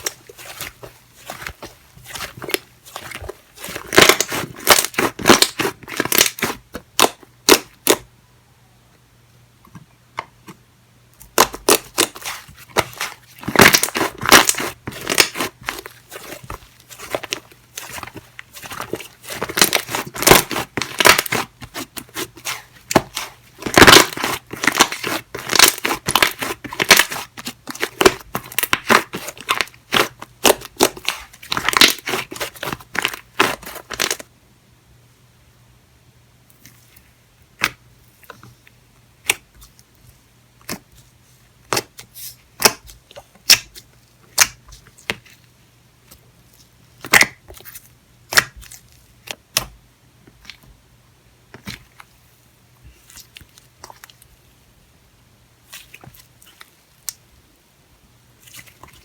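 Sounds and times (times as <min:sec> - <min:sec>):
slime squishing: 0:00.0 - 0:08.1, 0:11.2 - 0:34.3, 0:39.2 - 0:45.4, 0:52.9 - 0:54.4, 0:55.6 - 0:57.3, 0:58.4 - 0:59.0.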